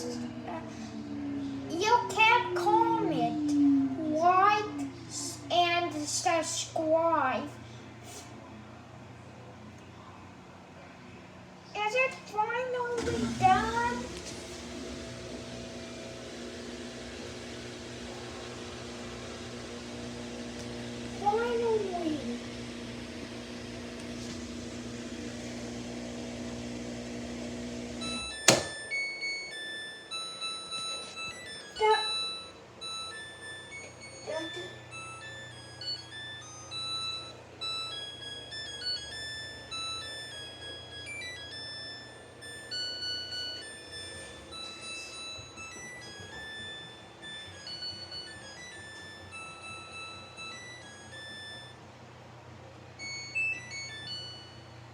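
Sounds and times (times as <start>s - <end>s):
washing machine motor hum: 0.0s - 7.2s, 11.8s - 54.9s
electronic beeping melody: 28.0s - 51.8s, 53.0s - 54.8s.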